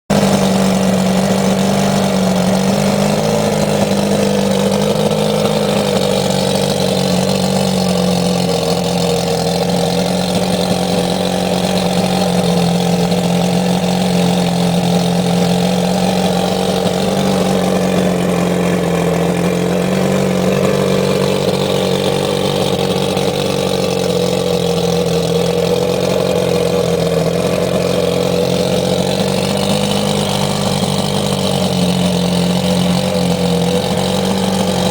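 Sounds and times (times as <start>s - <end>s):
outboard engine running: 0.0s - 34.9s.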